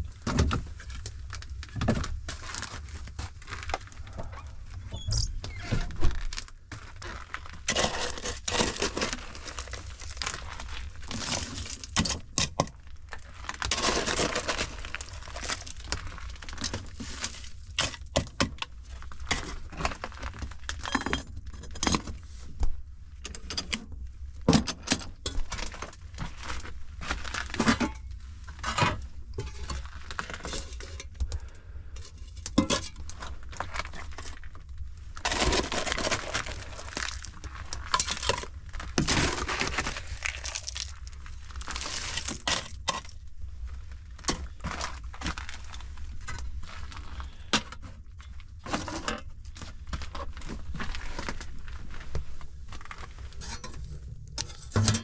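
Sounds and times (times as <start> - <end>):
scraping and rustling: 32.6 - 55.0.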